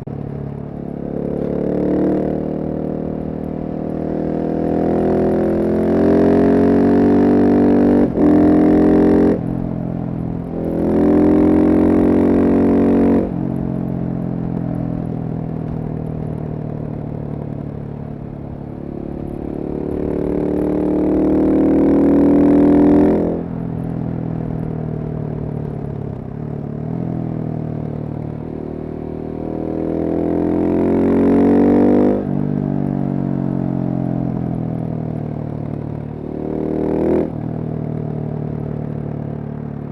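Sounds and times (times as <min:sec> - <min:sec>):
motorcycle engine revving hard: 0:03.9 - 0:09.7, 0:10.4 - 0:13.3, 0:19.0 - 0:23.5, 0:29.4 - 0:32.4.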